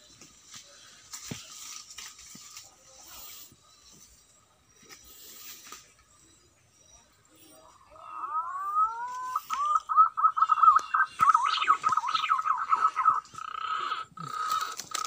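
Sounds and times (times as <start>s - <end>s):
bird whistling and warbling: 6.9s - 14.6s.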